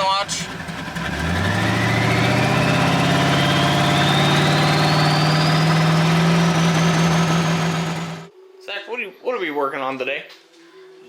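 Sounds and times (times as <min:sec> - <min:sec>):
car engine running: 0:00.0 - 0:08.3
turbo whine rising in pitch: 0:01.0 - 0:08.3.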